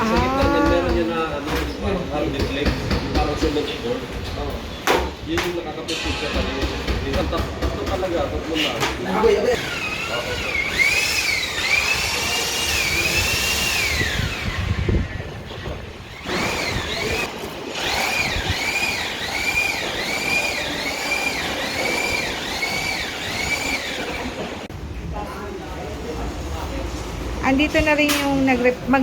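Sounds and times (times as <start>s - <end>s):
power drill whining: 9.3s - 15.2s, 16.1s - 24.6s.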